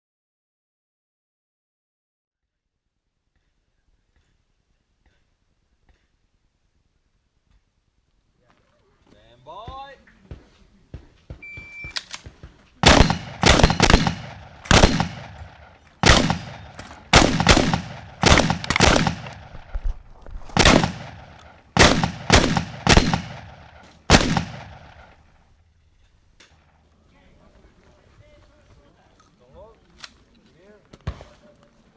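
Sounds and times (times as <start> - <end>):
shot-timer beep: 11.4 - 12.0
shotgun shots echoing: 12.8 - 19.8, 20.5 - 25.3.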